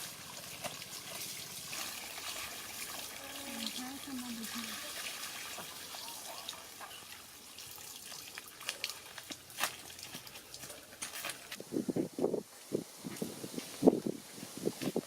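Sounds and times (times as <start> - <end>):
water running: 0.0 - 11.4
water splashes: 0.0 - 11.6.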